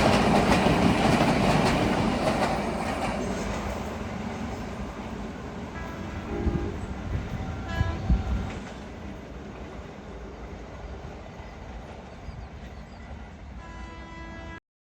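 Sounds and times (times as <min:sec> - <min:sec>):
diesel train rumbling on rails: 0:00.0 - 0:14.6
train horn notes: 0:05.7 - 0:08.5, 0:13.5 - 0:14.6.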